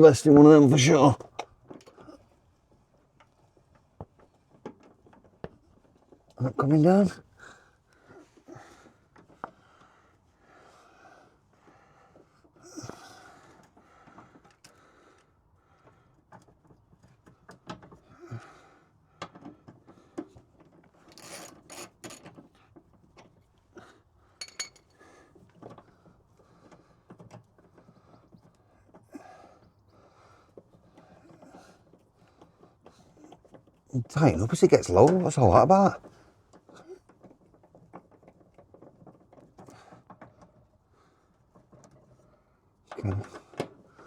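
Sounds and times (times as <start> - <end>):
man panting with effort: 7.3 - 16.2, 18.0 - 20.2, 28.0 - 33.2
metal tools clinking: 24.4 - 24.9.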